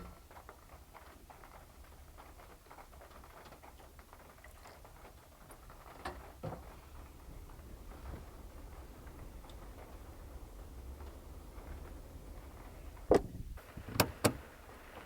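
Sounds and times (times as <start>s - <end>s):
steady low rumble: 6.6s - 14.5s
louder knocks: 13.1s - 13.5s.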